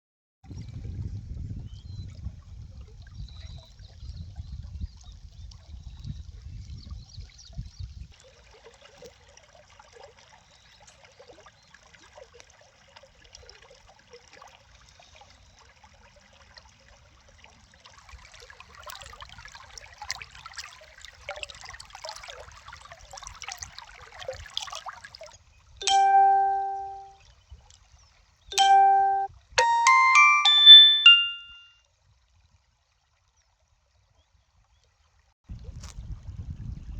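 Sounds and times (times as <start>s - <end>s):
water trickling and splashing: 0.5s - 26.8s
loud chime-like tone: 25.8s - 27.1s, 28.6s - 31.7s.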